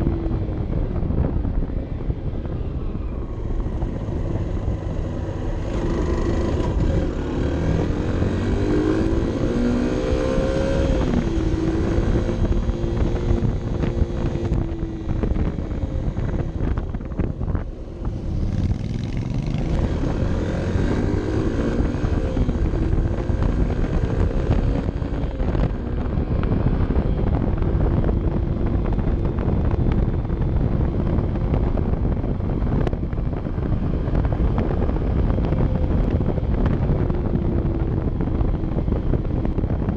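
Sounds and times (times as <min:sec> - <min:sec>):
wind on microphone: 0:00.0 - 0:39.9
motorcycle engine revving: 0:03.8 - 0:29.5.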